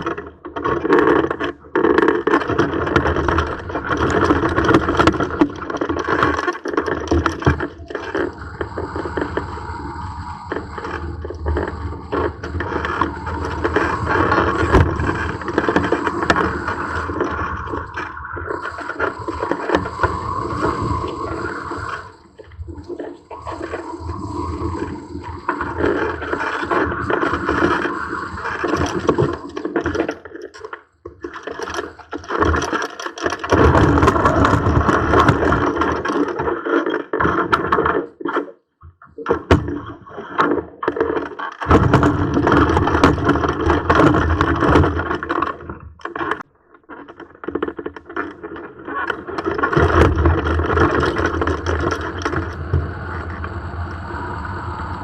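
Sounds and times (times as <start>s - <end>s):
gusty wind on microphone: 8.4s - 29.5s, 50.2s - 55.0s.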